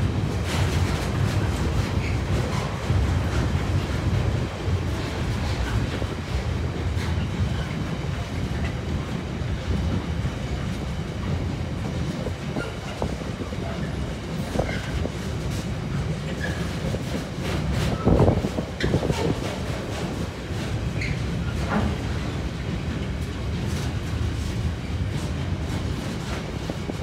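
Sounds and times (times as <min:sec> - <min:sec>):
freight train rumbling past: 0:00.0 - 0:27.0.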